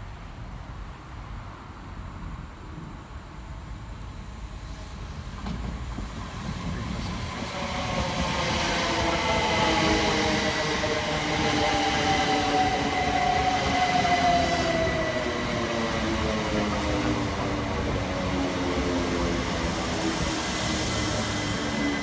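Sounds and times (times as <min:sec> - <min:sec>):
train wheels rumbling on rails: 0:04.4 - 0:22.0.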